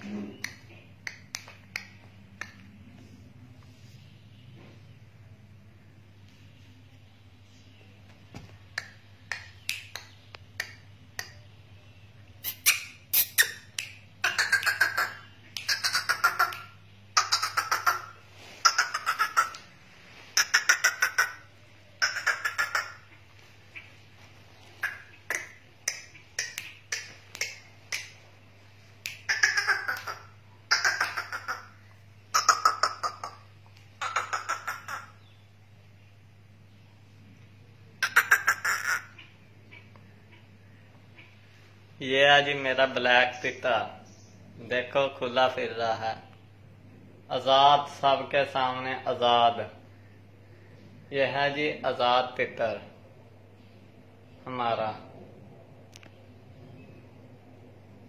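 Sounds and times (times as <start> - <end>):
bird rasping calls: 12.4 - 23.9, 24.6 - 28.2, 29.1 - 35.4, 38.0 - 41.4.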